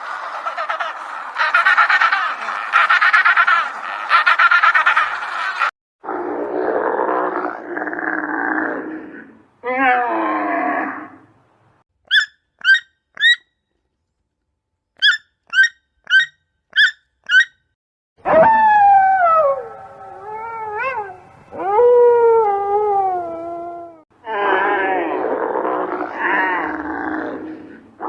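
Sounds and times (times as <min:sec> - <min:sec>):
animal howl-like cries: 0:09.6 - 0:11.1, 0:18.2 - 0:27.7
animal yipping: 0:12.1 - 0:13.4, 0:15.0 - 0:17.6.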